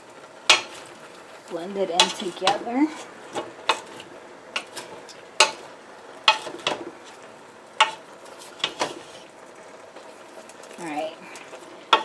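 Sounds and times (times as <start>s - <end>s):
spoon stirring food in pot: 0.4s - 1.4s, 2.0s - 9.4s, 10.0s - 12.0s.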